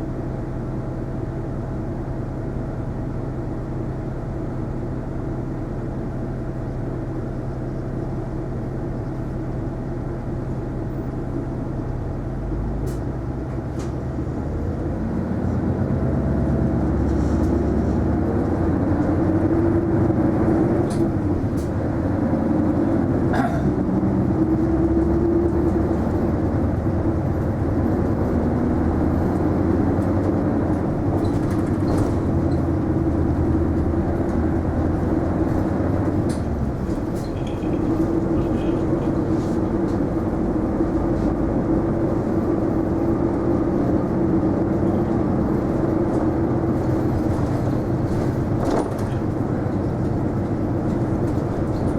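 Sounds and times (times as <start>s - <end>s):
bus diesel engine hum: 0.0s - 51.9s
road noise: 0.0s - 51.9s.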